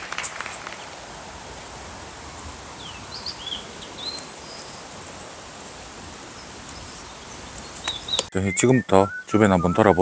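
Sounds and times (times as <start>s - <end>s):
open-air background hiss: 0.0s - 10.0s
small bird chirping: 6.4s - 10.0s.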